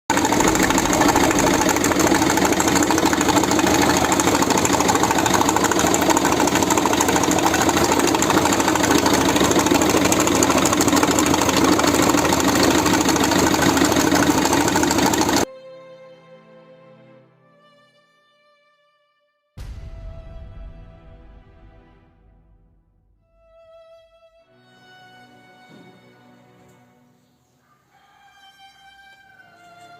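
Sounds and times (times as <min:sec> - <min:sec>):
diesel engine idling with knock: 0:00.1 - 0:15.5.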